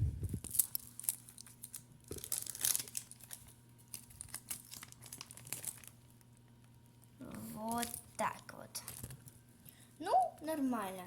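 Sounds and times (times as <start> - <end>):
paper sticker crinkling: 0.2 - 6.6.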